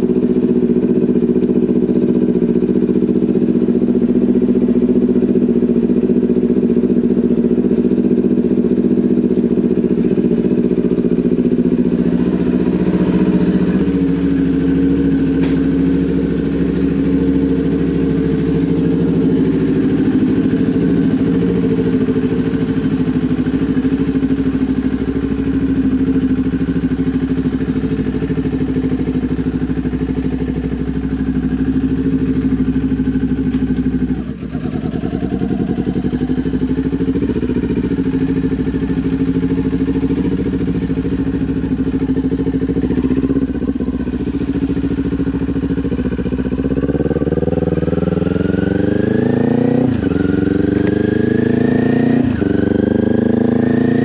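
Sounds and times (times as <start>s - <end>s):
motorcycle engine while riding: 0.0s - 54.0s.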